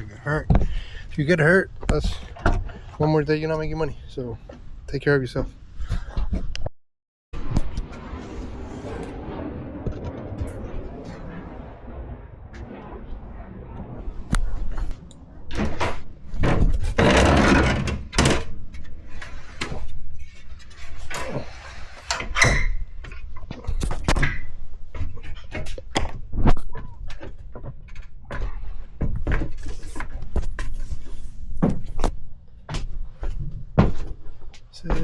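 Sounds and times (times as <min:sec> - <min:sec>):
rustling or scraping: 0:07.4 - 0:22.3, 0:23.1 - 0:32.2.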